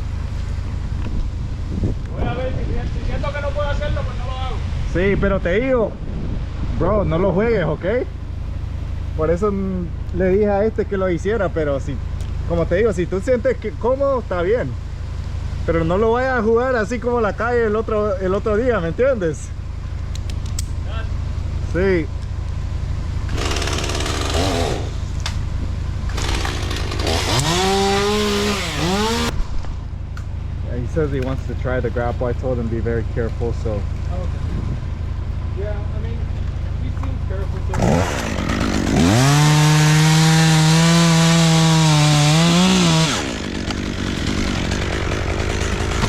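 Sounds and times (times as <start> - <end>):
low engine hum: 0.0 - 46.0
chainsaw revving: 23.3 - 25.2, 26.1 - 29.4, 37.7 - 46.0.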